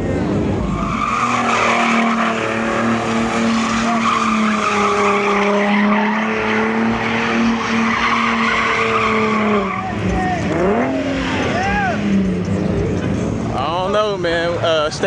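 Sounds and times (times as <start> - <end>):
car engine revving high: 0.0 - 14.6
tyres squealing on pavement: 0.5 - 12.5.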